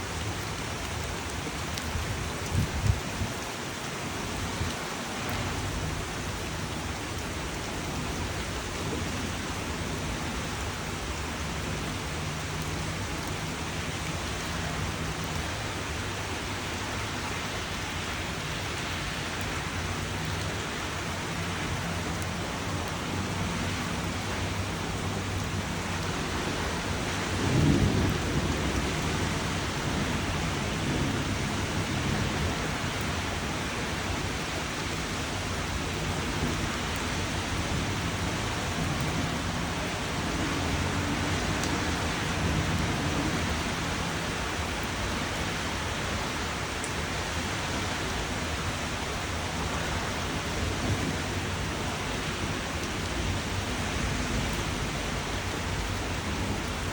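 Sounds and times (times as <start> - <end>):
steady rain: 0.0 - 56.9
thunder rumbling: 26.0 - 32.9.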